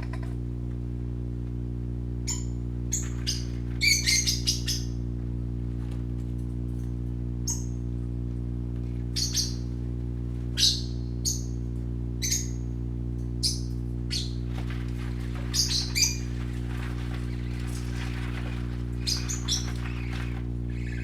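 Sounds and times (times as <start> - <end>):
steady low hum: 0.0 - 21.0
parakeets chirping: 2.3 - 5.0, 9.2 - 9.7, 10.5 - 11.6, 12.2 - 12.6, 13.4 - 21.0.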